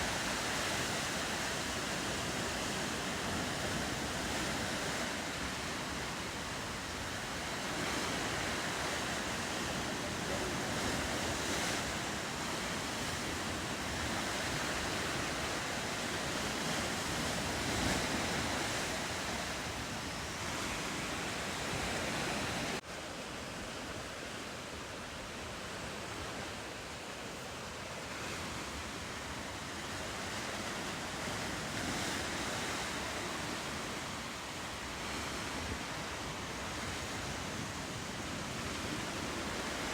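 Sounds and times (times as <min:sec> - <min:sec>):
wind on microphone: 0:00.0 - 0:22.8
ocean surf washing: 0:00.0 - 0:39.9.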